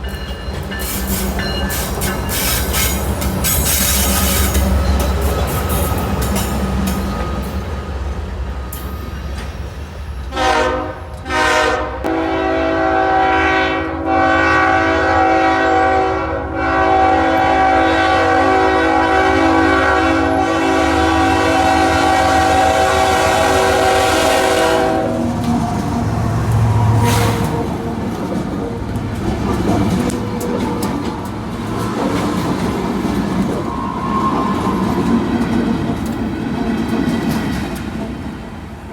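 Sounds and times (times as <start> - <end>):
diesel locomotive rumbling: 0.0 - 38.9
locomotive horn chord: 10.3 - 25.4.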